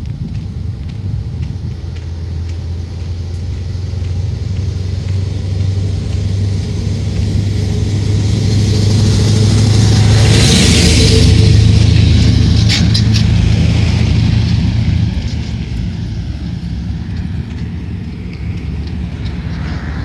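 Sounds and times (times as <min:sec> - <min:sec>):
motor vehicle rumble: 0:00.0 - 0:20.0.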